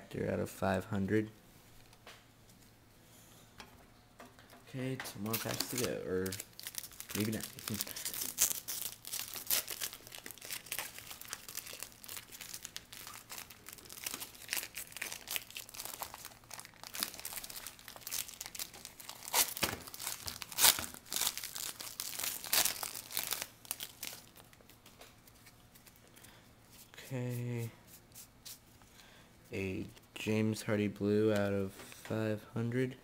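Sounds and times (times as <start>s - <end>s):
plastic wrapper crinkling and tearing: 5.2s - 26.2s.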